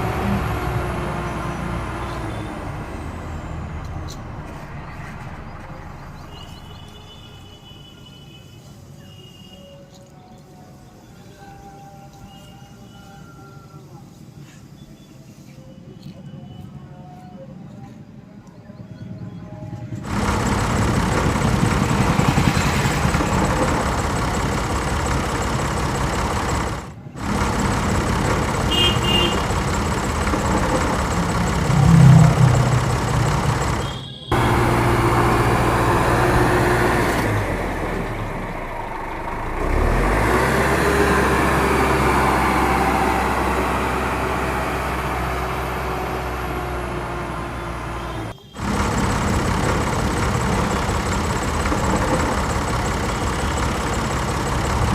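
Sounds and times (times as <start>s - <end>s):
motor running: 20.1s - 43.6s, 47.8s - 54.9s.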